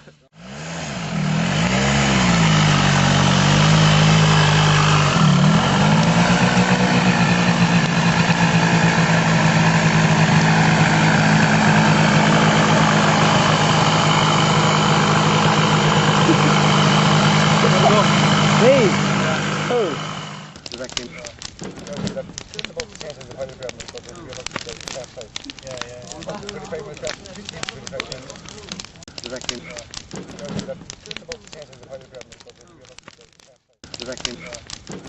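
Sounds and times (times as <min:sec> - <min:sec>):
two-stroke go-kart engine revving: 0:00.3 - 0:20.6.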